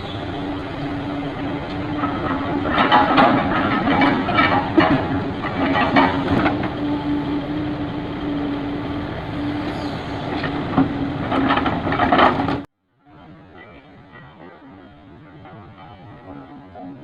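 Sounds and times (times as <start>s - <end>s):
truck diesel engine running: 0.0s - 12.7s
faint rumble: 0.0s - 17.0s.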